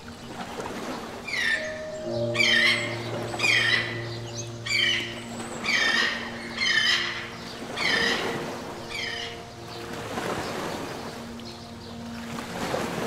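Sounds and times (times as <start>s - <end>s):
soft background music chords: 0.0s - 13.0s
bird squawking: 1.3s - 9.4s.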